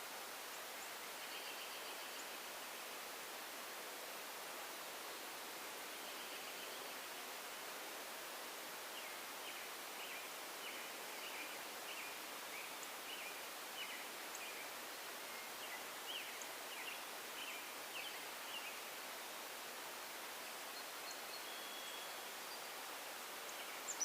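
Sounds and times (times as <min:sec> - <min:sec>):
steady background hiss: 0:00.0 - 0:24.0
bird chirping: 0:23.5 - 0:24.0.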